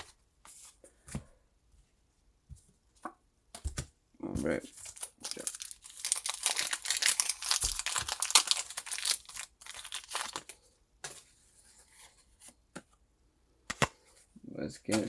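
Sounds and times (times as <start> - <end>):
foil wrapper crinkling and tearing: 4.7 - 10.6.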